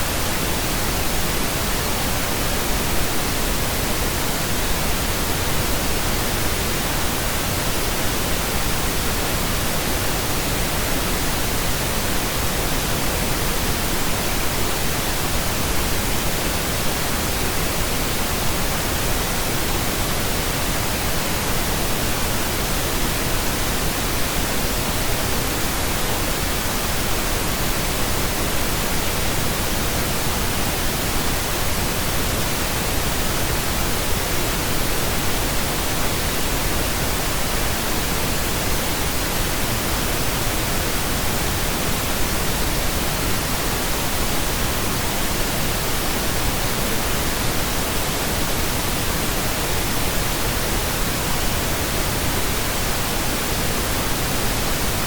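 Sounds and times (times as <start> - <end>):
pink noise hiss: 0.0 - 55.0.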